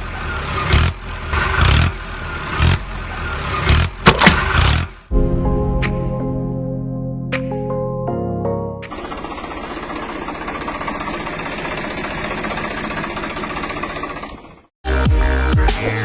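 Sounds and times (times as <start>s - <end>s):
small tractor engine running: 0.0s - 5.0s, 8.9s - 14.8s
electronic music with heavy beat: 14.9s - 16.0s.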